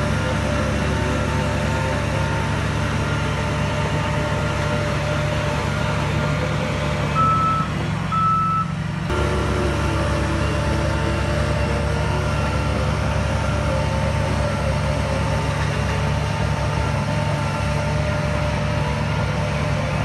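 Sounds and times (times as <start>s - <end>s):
diesel machinery running: 0.0s - 20.0s
reversing alarm beeps: 7.2s - 8.7s.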